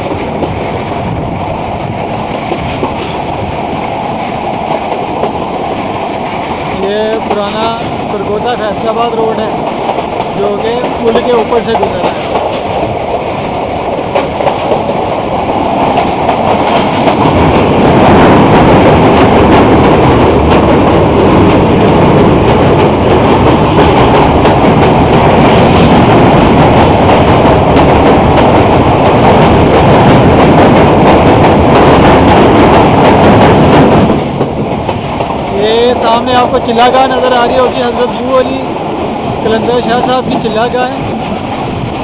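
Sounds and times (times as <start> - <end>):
train wheels clattering on rails: 0.0 - 42.0.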